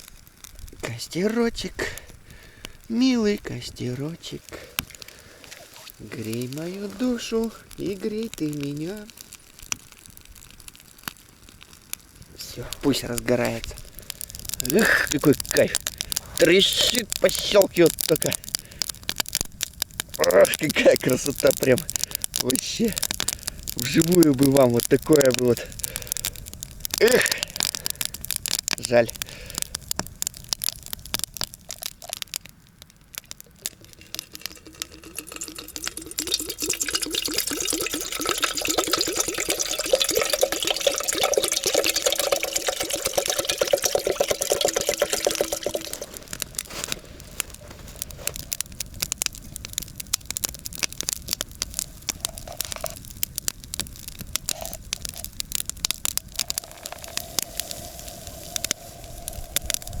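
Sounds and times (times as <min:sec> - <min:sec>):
campfire crackling: 0:00.0 - 1:00.0
loud hiss with whistle-like tone: 0:56.2 - 1:00.0.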